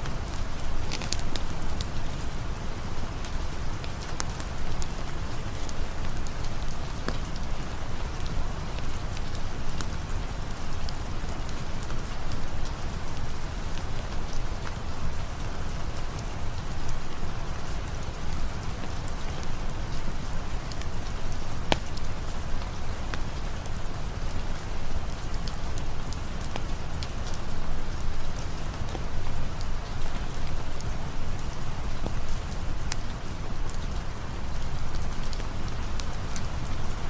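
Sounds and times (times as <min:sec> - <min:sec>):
single raindrop ticks: 0:00.0 - 0:02.2, 0:05.6 - 0:07.5, 0:19.4 - 0:23.8
steady rain hiss: 0:00.0 - 0:37.0.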